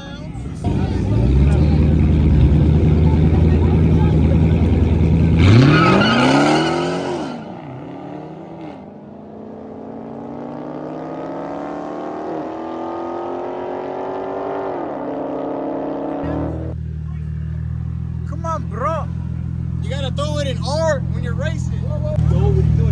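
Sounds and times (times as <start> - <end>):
car engine revving and accelerating: 0.6 - 17.0.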